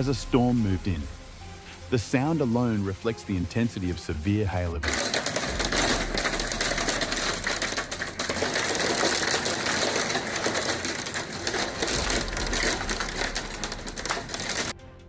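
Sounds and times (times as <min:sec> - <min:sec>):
hailstones pelting down: 0:04.8 - 0:14.8
low rumble: 0:11.4 - 0:14.7.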